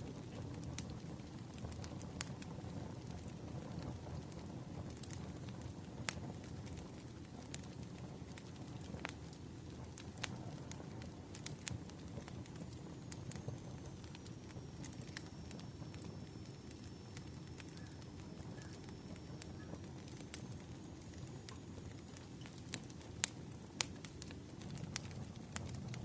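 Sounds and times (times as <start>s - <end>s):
firewood crackling and popping: 0.0s - 26.0s
low steady rumble: 18.0s - 26.0s.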